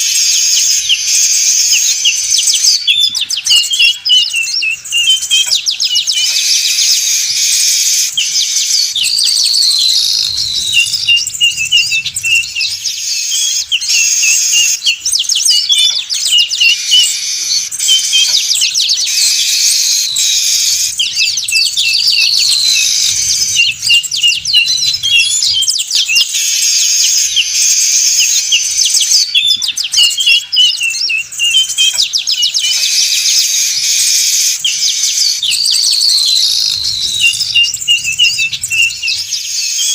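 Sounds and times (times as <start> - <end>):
weaver birds chattering: 0.0 - 39.9.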